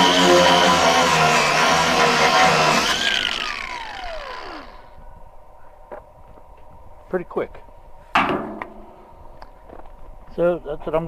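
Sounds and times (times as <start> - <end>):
angle grinder sanding wood: 0.0 - 4.9.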